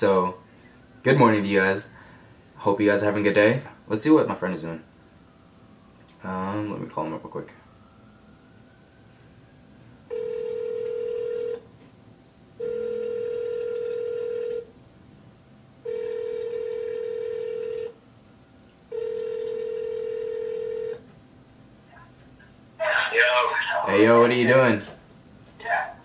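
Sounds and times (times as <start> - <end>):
phone ringback tone beeps: 10.1 - 11.6, 12.6 - 14.7, 15.8 - 18.0, 18.9 - 21.0.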